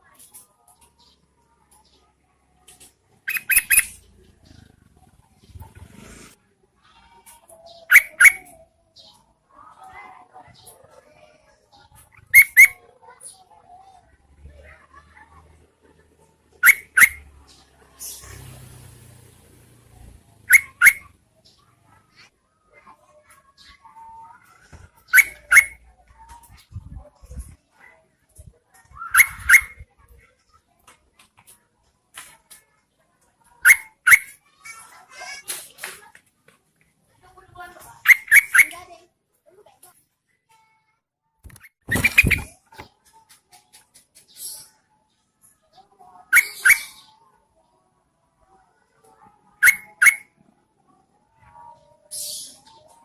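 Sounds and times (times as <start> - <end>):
bird calling sharp rising notes: 20.4 - 21.1.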